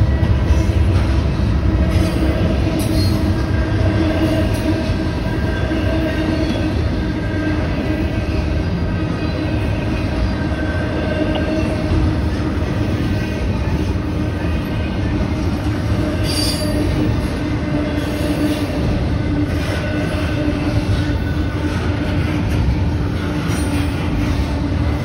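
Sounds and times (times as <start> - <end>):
freight train wheels rumbling: 0.0 - 25.0
wheel squeal: 16.1 - 17.0.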